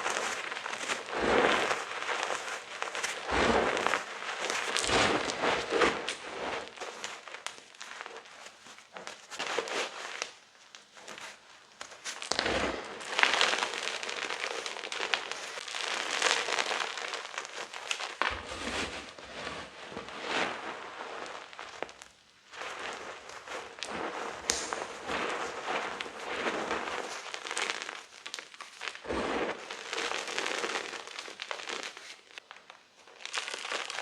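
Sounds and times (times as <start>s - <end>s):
chalk crunching: 0.0s - 8.1s, 12.0s - 22.0s, 22.6s - 32.3s.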